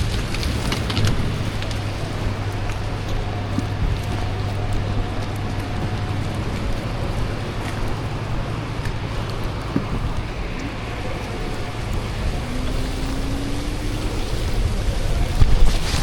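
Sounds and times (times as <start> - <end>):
street traffic rumble: 0.0 - 16.0
faint rising whine: 1.1 - 16.0.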